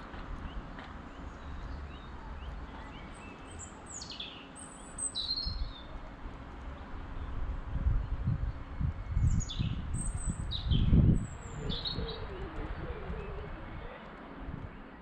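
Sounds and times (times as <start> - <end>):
small birds chirping: 0.4 - 6.0, 7.1 - 15.0
low rumbling noise: 5.5 - 15.0.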